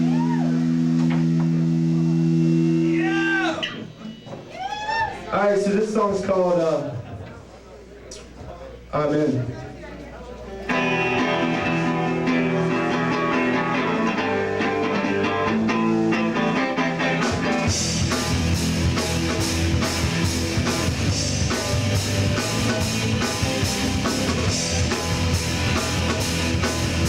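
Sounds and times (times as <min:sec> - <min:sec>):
guitar intro: 0:00.0 - 0:04.0, 0:10.5 - 0:27.0
rock band playing: 0:00.0 - 0:04.3, 0:10.6 - 0:27.0.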